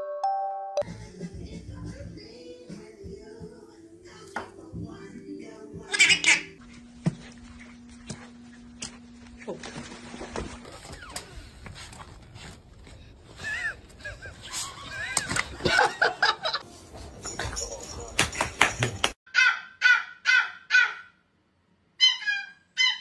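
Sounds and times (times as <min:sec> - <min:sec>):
parrot calling: 0:05.9 - 0:06.6, 0:22.0 - 0:23.0.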